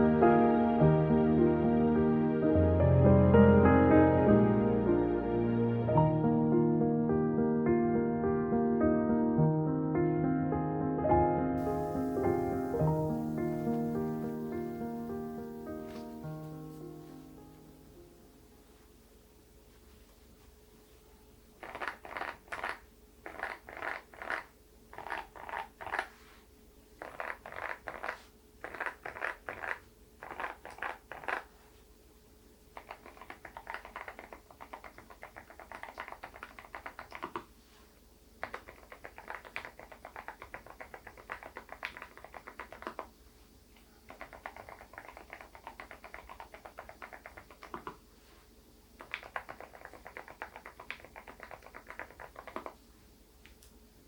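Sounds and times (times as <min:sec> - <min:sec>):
mechanical keyboard typing: 0:27.0 - 0:31.5, 0:32.8 - 0:37.4, 0:38.4 - 0:43.1, 0:44.1 - 0:48.0, 0:49.0 - 0:52.8.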